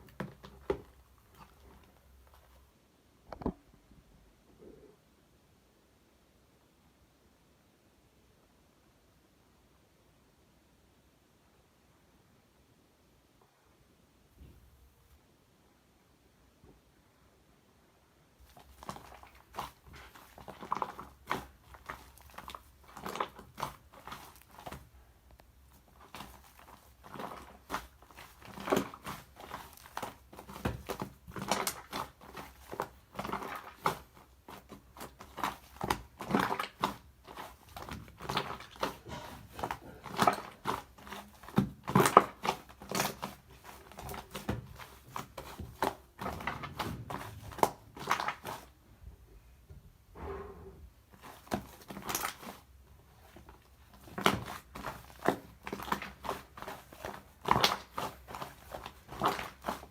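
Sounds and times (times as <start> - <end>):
slime squishing by hand: 0.0 - 3.7, 18.4 - 48.9, 50.6 - 59.9.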